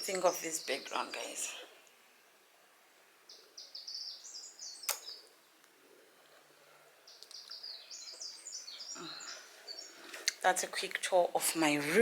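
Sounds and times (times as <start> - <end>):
songbird chirping: 0.0 - 12.0
sharp click: 4.9 - 5.2.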